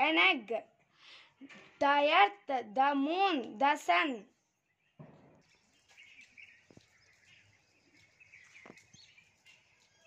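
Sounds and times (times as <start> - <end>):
faint bird chirps: 4.3 - 10.0.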